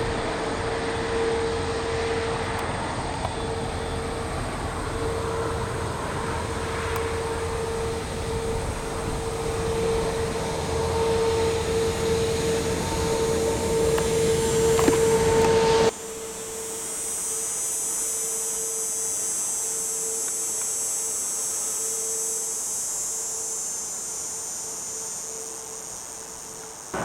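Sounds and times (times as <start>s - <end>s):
jet engines idling: 0.0s - 27.0s.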